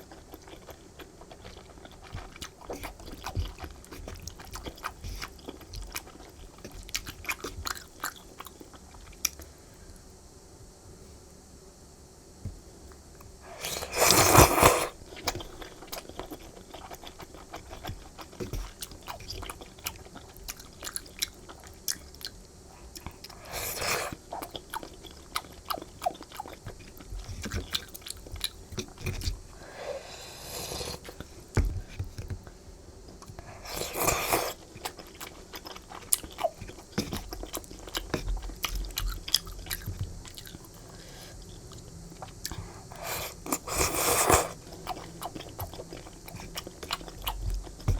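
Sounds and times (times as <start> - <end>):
chewing noodles: 0.0 - 9.4, 13.6 - 29.4, 33.1 - 47.9
slurping: 13.5 - 15.0, 23.3 - 24.2, 33.6 - 34.6, 42.9 - 47.9.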